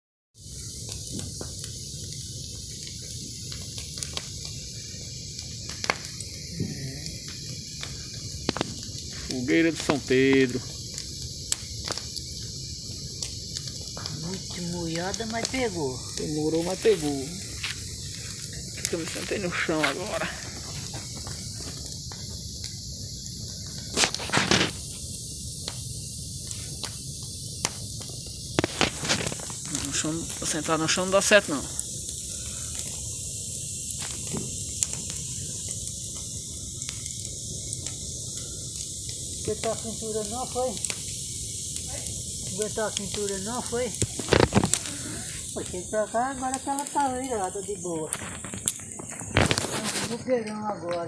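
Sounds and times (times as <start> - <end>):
fire crackling pops: 0.4 - 51.0
wet wood fire hissing: 0.4 - 51.0.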